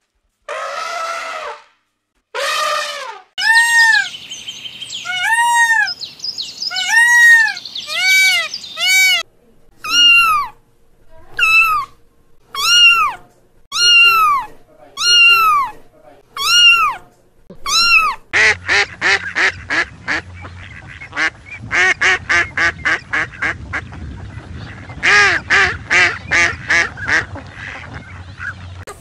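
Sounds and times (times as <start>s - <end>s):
peacock calls: 2.4s - 10.6s, 11.3s - 15.8s, 16.4s - 23.4s
kittens meowing: 5.0s - 6.0s, 6.7s - 9.2s, 9.8s - 10.6s, 11.3s - 15.8s, 16.4s - 17.0s, 17.6s - 18.3s
elephant trumpeting: 6.8s - 9.2s, 9.8s - 10.6s, 11.3s - 15.8s, 16.4s - 17.0s.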